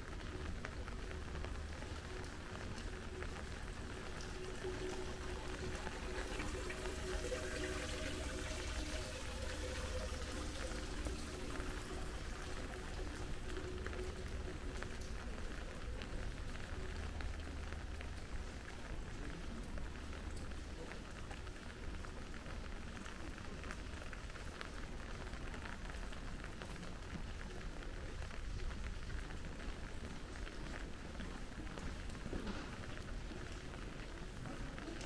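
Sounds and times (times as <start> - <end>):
faint steady hum: 0.0 - 19.9
rain on hard surfaces: 0.0 - 35.0.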